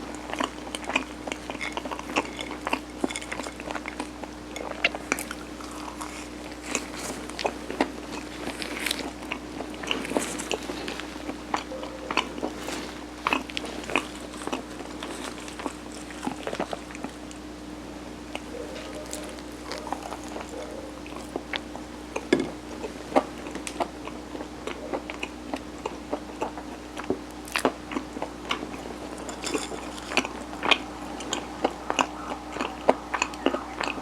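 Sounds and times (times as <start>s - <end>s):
chewing with wet smacks: 0.0s - 34.0s
faint steady hum: 0.0s - 34.0s
mouth clicks: 30.6s - 34.0s.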